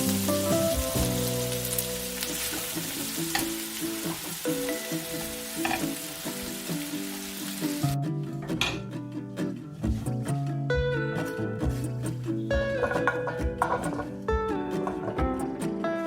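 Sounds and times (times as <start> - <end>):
food sizzling in a pan: 0.0 - 8.0
soft background music: 0.0 - 16.0.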